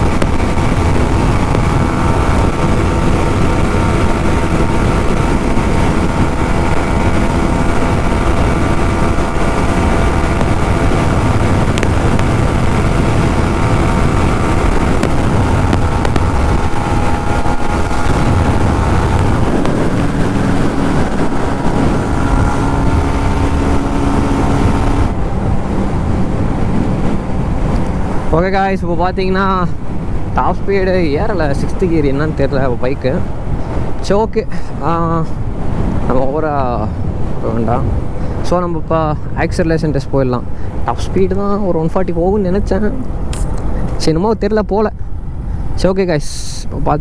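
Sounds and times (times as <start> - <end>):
motorcycle engine at high revs: 0.0 - 28.3
wind rush on microphone: 0.0 - 47.0.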